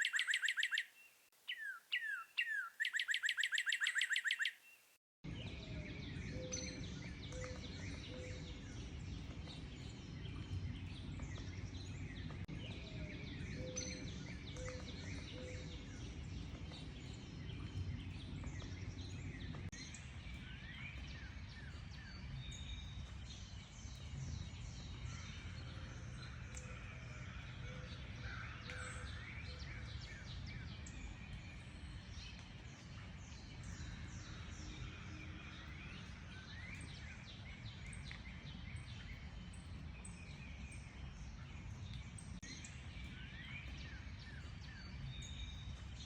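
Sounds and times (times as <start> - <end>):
low bird call: 0.0 - 4.8
songbirds chirping: 0.0 - 46.0
low rumble of background noise: 5.3 - 46.0.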